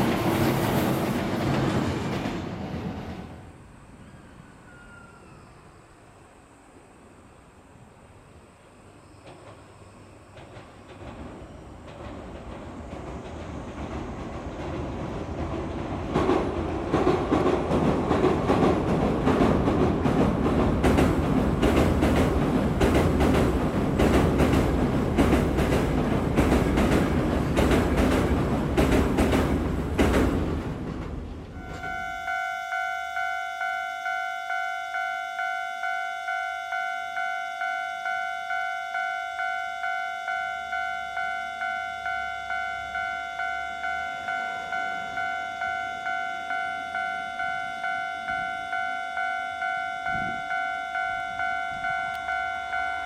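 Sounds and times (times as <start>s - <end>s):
train wheels clacking on bridge: 0.0s - 3.4s, 9.2s - 31.8s
level crossing warning bell: 31.6s - 53.0s.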